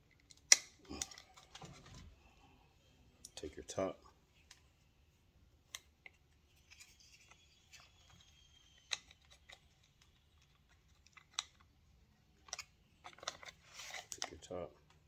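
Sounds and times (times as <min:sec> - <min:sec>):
plastic parts clicking: 0:00.1 - 0:02.1, 0:05.7 - 0:11.8, 0:12.4 - 0:15.0.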